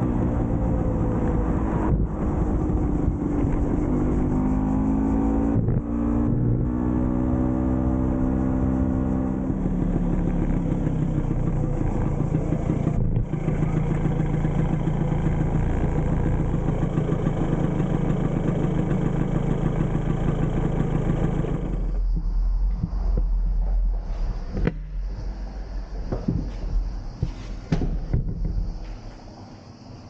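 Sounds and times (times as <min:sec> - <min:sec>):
scooter engine running: 0:00.0 - 0:23.6.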